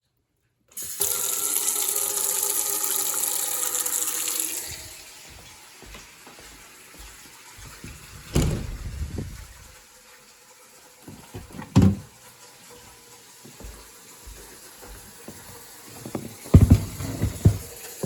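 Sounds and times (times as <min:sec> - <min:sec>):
water running hard: 0:00.9 - 0:18.0
low rumbles and knocks: 0:07.8 - 0:09.6.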